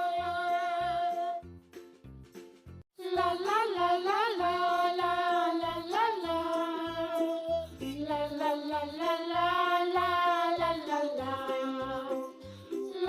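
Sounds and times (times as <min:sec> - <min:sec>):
children's music with gliding melody: 0:00.0 - 0:13.0.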